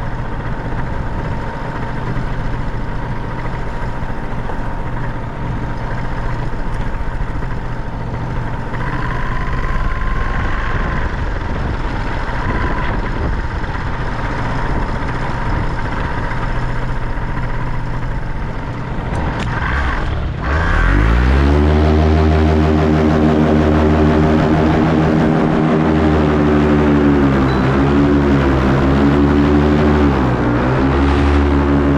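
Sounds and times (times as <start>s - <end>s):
wind buffeting microphone: 0.0s - 19.7s
paramotor engine: 0.0s - 31.9s.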